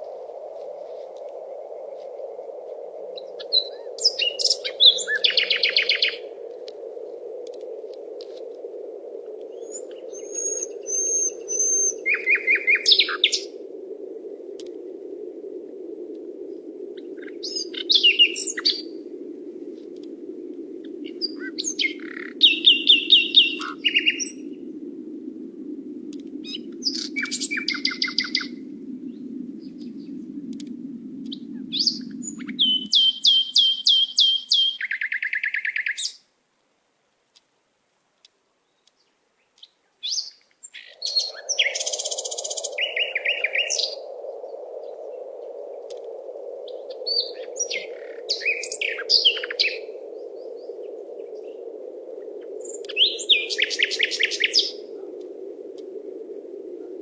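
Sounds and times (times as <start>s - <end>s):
birds chirping and trilling: 3.1s - 6.3s, 9.5s - 13.6s, 17.0s - 19.0s, 20.8s - 24.6s, 26.4s - 30.6s, 31.2s - 36.2s, 38.6s - 45.2s, 46.6s - 51.7s, 52.4s - 54.9s.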